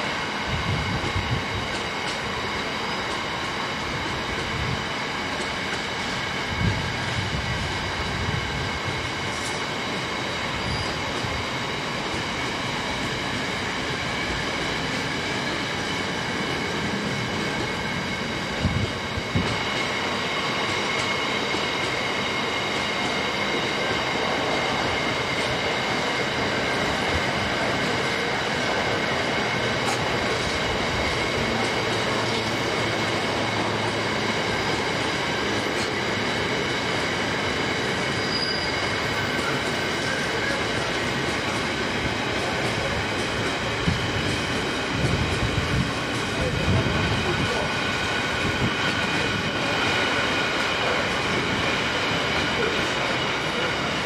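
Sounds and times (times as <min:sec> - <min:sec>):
train wheels rumbling on rails: 0:00.0 - 0:54.0
high squeal of wheels: 0:10.4 - 0:11.4, 0:37.9 - 0:40.7.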